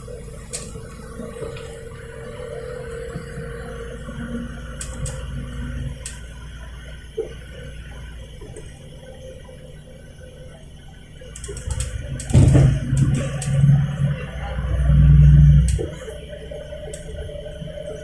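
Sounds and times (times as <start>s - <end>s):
bus engine and road rumble: 0.0s - 18.0s
light rattles and clicks: 11.3s - 13.7s.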